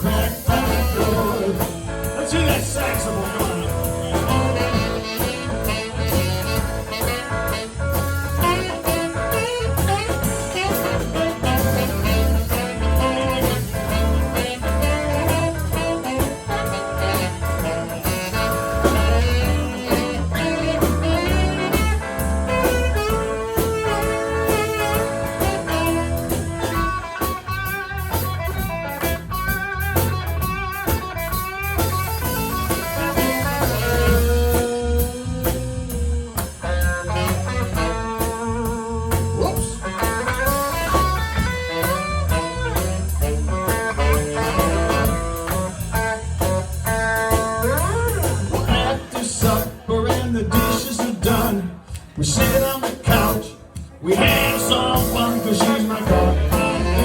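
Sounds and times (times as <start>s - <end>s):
bass guitar: 0.0s - 57.0s
drum kit steady beat: 0.0s - 57.0s
rhythm guitar: 0.0s - 57.0s
lead guitar solo: 3.7s - 35.4s, 36.0s - 48.5s.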